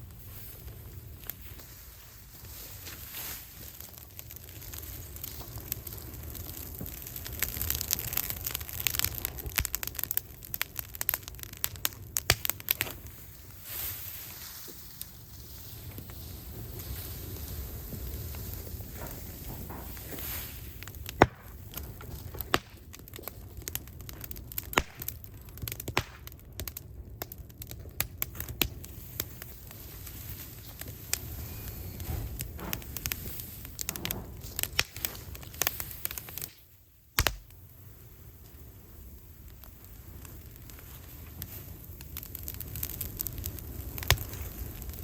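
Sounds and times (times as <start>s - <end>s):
wood fire crackling and popping: 0.0s - 45.0s.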